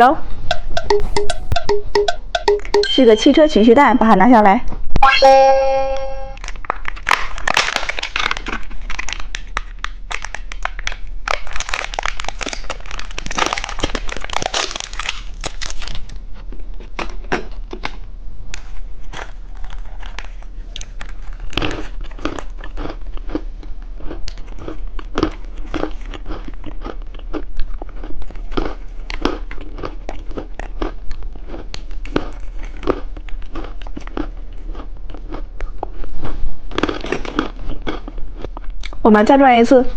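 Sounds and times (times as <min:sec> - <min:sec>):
plastic wrapper crinkling and tearing: 0:06.4 - 0:17.9
crunching and chewing candy: 0:06.4 - 0:39.0.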